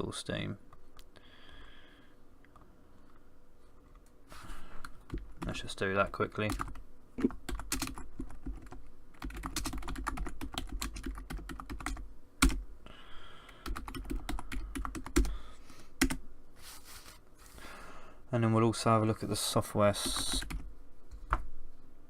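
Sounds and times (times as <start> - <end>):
typing on computer keyboard: 6.5 - 6.8, 7.5 - 12.6, 13.6 - 15.3.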